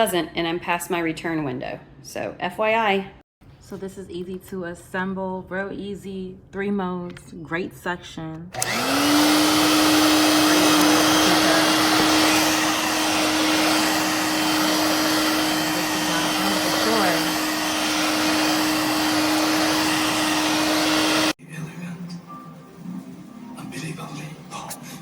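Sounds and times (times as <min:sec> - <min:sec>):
vacuum cleaner running: 0:08.6 - 0:21.4.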